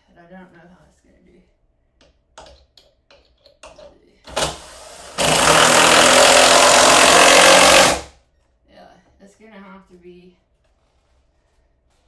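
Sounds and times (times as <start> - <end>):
power drill driving screw into wood: 4.3 - 8.1.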